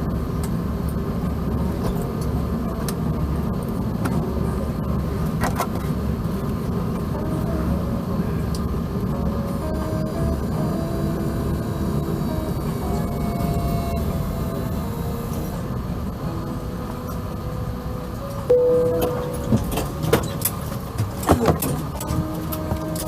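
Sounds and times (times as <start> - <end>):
airplane cabin rumble: 0.0 - 23.0
brief tone: 18.5 - 20.4.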